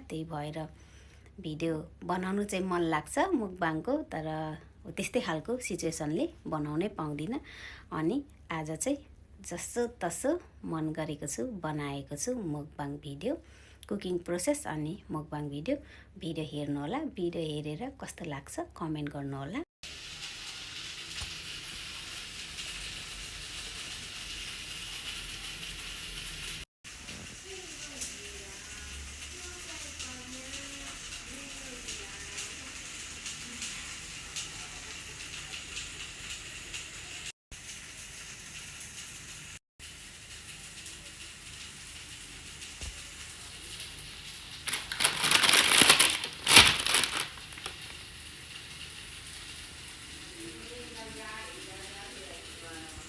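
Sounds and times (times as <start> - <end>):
food sizzling in a pan: 19.8 - 53.0
frying hiss: 19.8 - 53.0
plastic packaging crinkling: 44.5 - 48.1.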